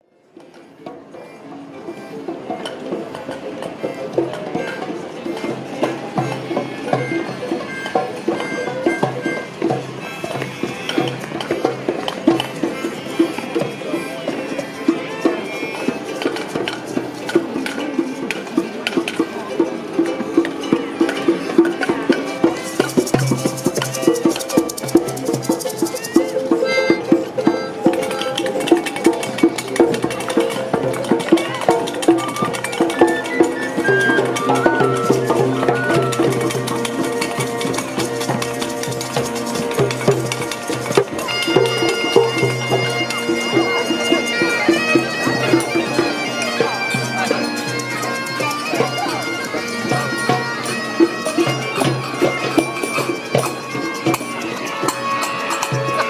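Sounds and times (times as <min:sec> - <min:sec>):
wind instrument melody: 0:03.1 - 0:56.0
metallic percussion clanks: 0:16.1 - 0:56.0.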